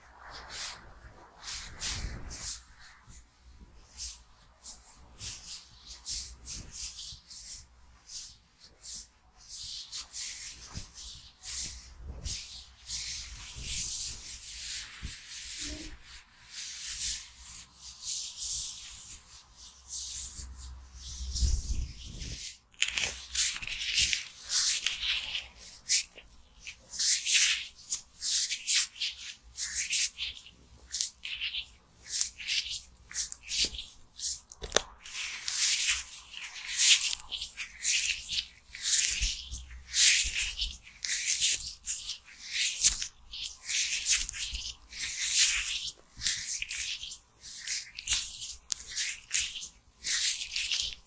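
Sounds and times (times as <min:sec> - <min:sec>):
rubber gloves rubbing: 0:20.2 - 0:51.0.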